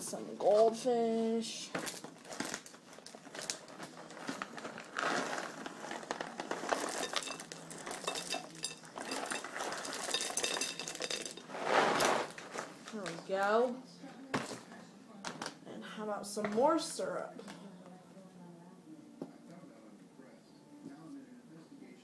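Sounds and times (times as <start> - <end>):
crackers clinking onto a dish: 1.8 - 13.2
rustling: 1.8 - 13.2.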